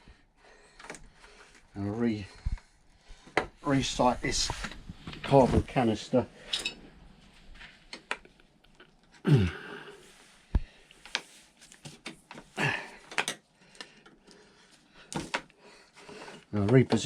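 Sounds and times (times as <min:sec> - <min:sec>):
plastic parts and hoses handled: 0:10.5 - 0:17.0.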